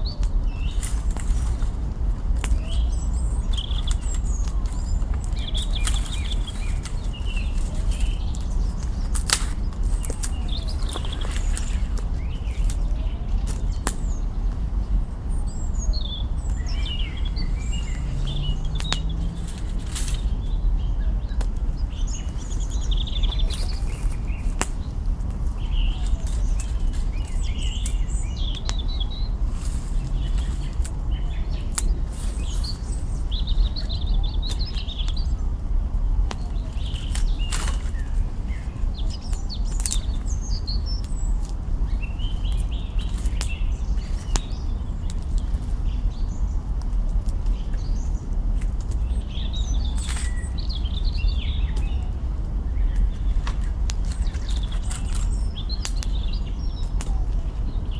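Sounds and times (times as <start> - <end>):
small birds chirping: 0.0 - 57.9
campfire crackling and popping: 16.4 - 20.3, 21.4 - 28.9, 36.2 - 45.9, 51.2 - 57.1.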